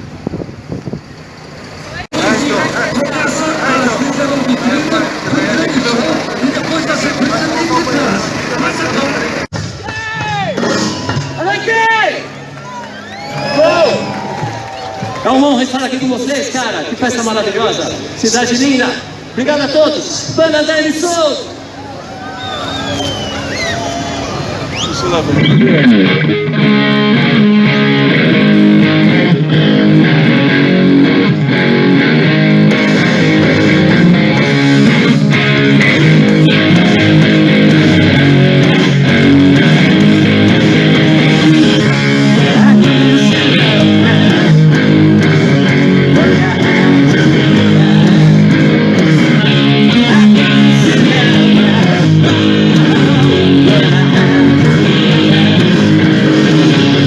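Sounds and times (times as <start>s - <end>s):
bass guitar: 1.8s - 15.8s, 24.5s - 57.0s
rock band playing live: 2.1s - 15.2s, 25.2s - 57.0s
electric guitar: 22.8s - 57.0s.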